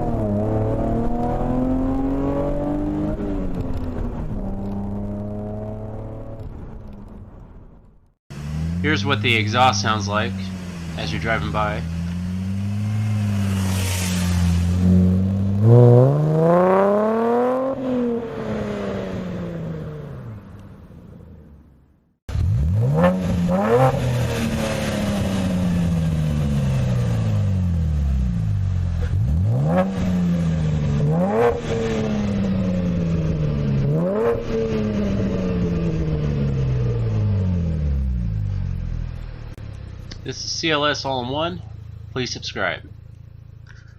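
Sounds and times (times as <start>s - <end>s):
engine revving: 0.0s - 7.4s, 8.3s - 21.3s, 22.3s - 43.9s
car accelerating past: 8.3s - 20.6s, 22.3s - 39.2s.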